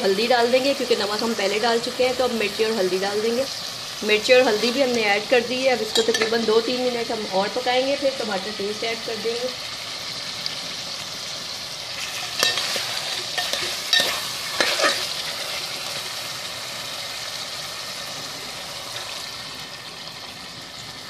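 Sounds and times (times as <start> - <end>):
chicken sizzling in hot oil: 0.0 - 21.0
metal spoon scraping a pot: 12.0 - 15.2.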